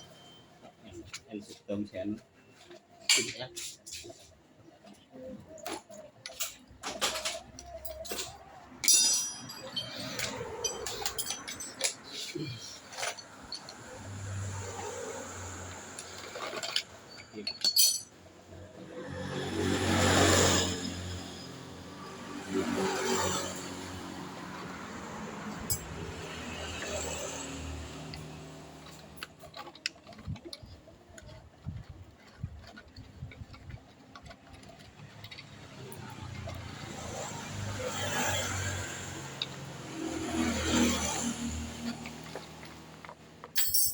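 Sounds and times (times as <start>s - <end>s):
metal tools clinking: 5.9s - 14.7s, 15.8s - 18.4s, 25.5s - 31.4s, 32.3s - 43.9s.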